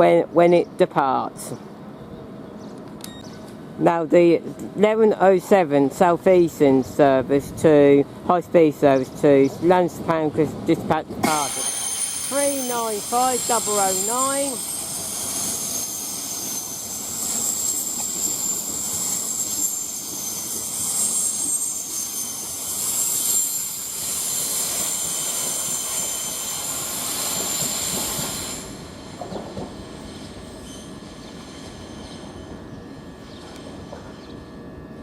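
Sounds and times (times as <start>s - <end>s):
train rumbling: 1.3s - 35.0s
train wheels squealing: 11.3s - 35.0s.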